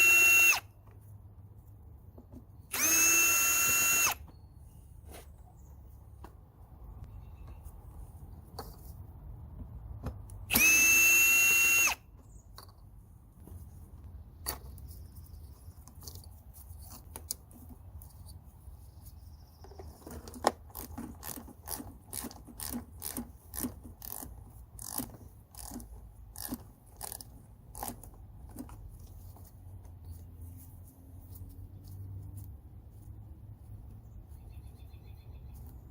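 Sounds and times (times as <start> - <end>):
cordless power drill running: 0.0 - 0.6, 2.7 - 4.2, 10.5 - 12.0.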